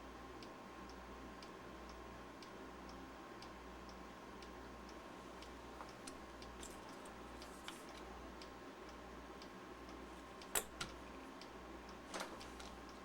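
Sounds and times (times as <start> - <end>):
faint steady hum: 0.0 - 13.0
small parts clicking and tapping: 5.4 - 8.1, 10.4 - 13.0.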